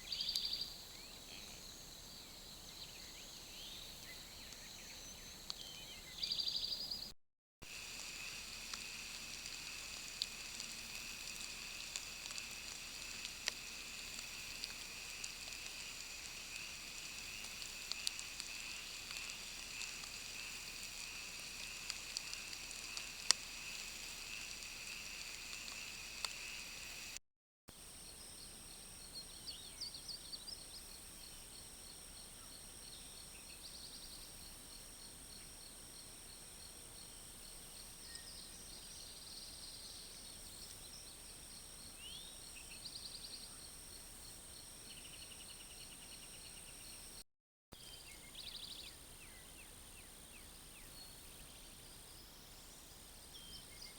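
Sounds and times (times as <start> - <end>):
insect chirps: 0.0 - 47.2, 47.8 - 53.9
insects chorusing: 7.6 - 27.2
faint clicks: 7.8 - 27.2.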